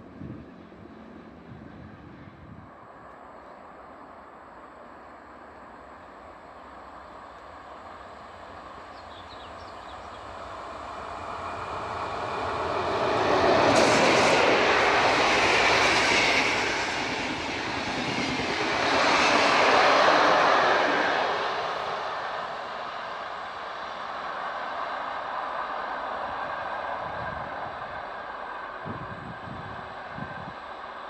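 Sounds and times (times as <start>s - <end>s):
passenger train passing: 0.0s - 31.0s
train wheels rolling on rails: 7.2s - 31.0s.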